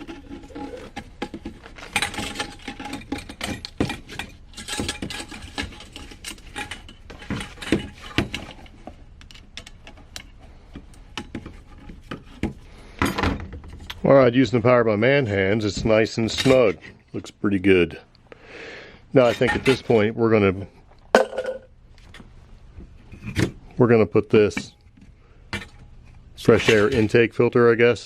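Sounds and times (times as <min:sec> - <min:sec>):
metal parts clicking and scraping: 0:00.0 - 0:14.0, 0:26.4 - 0:27.4.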